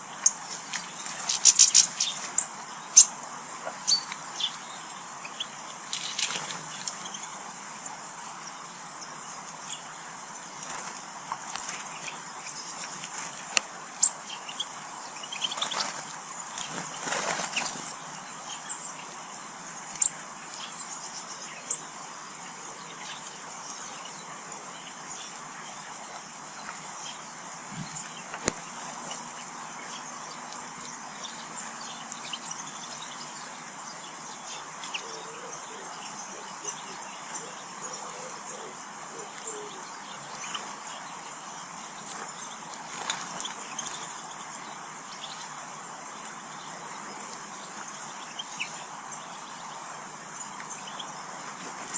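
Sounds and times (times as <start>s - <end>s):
small birds chirping: 0.0s - 51.9s
wing flutter: 0.2s - 2.5s, 5.8s - 7.3s, 10.5s - 14.0s, 15.4s - 18.0s, 42.1s - 44.2s.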